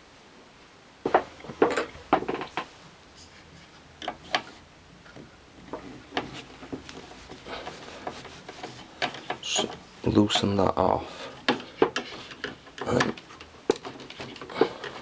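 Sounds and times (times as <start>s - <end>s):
clicks and knocks of tools on plastic: 1.1s - 2.7s, 4.0s - 9.8s, 11.4s - 15.0s.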